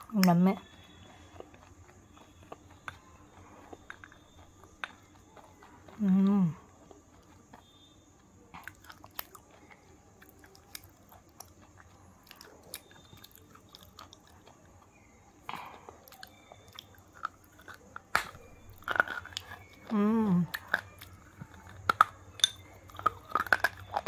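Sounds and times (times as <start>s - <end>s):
chewing wafer: 0.0s - 24.0s.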